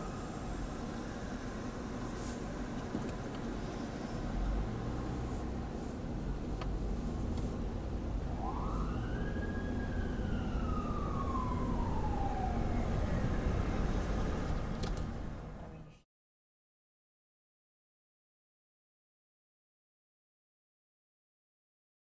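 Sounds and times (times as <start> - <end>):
fire engine siren wailing: 0.0 - 1.9, 8.2 - 14.5
engine and road rumble: 0.0 - 16.0.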